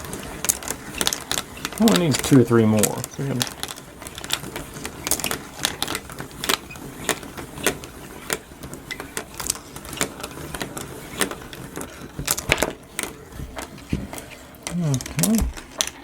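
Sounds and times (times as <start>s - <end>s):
marble run clicks: 0.0s - 16.0s
marbles clattering on wooden track: 0.0s - 16.0s.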